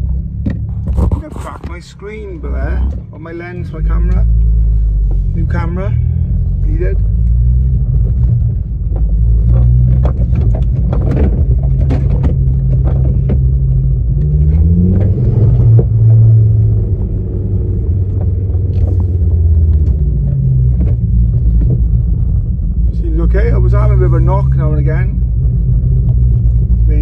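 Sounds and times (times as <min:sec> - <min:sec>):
car engine from inside cabin: 0:00.0 - 0:27.0
interior rattles and ticks: 0:07.0 - 0:15.9.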